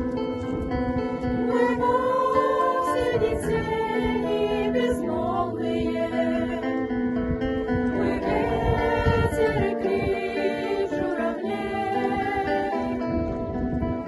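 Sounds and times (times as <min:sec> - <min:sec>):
children's choir singing: 0:01.3 - 0:06.9, 0:07.9 - 0:13.2.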